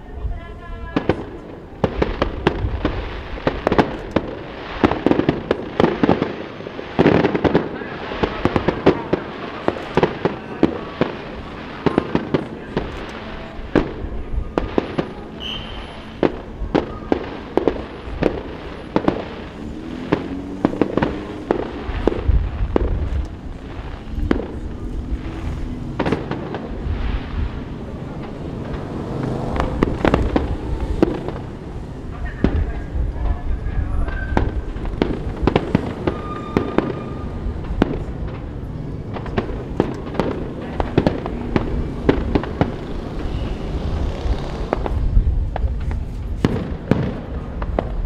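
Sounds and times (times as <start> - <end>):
fireworks bangs with echo: 0.2 - 48.0
wind rumble on microphone: 1.4 - 5.7, 19.5 - 48.0.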